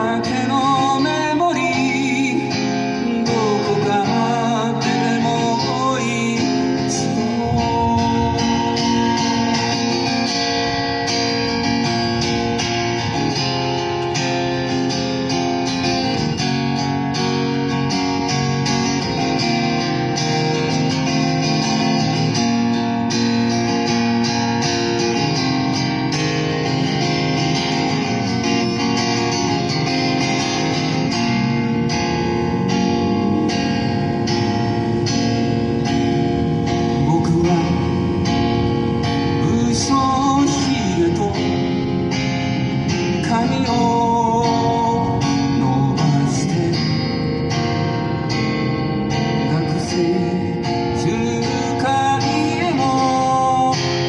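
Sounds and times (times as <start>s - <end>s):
guitar strummed: 0.0s - 54.0s
wavering melody line: 6.0s - 23.4s, 25.3s - 45.7s.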